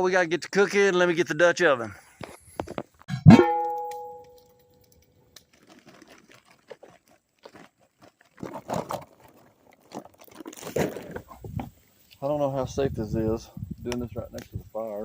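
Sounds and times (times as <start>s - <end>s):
struck metal ringing: 3.1s - 4.7s
crunching and rustling: 4.9s - 12.2s.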